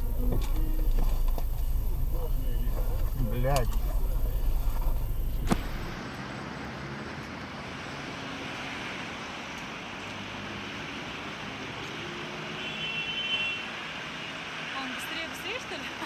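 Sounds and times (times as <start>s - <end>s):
low rumble: 0.0s - 6.0s
car road and tyre noise: 0.0s - 16.0s.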